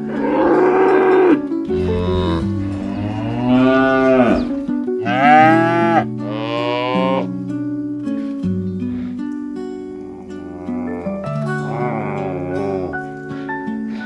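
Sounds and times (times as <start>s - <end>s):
cattle mooing: 0.0s - 7.3s, 10.2s - 13.1s.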